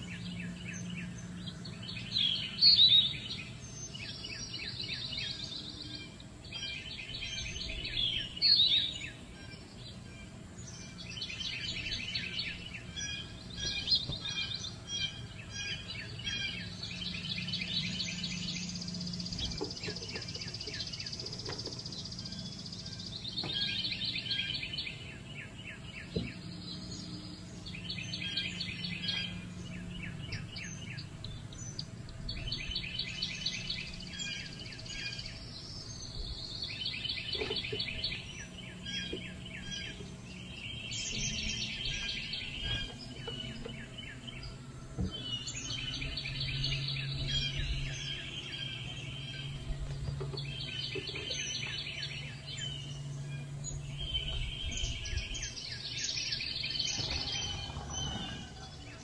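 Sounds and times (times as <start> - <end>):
low hum: 0.0 - 59.0
songbirds trilling: 0.0 - 59.0.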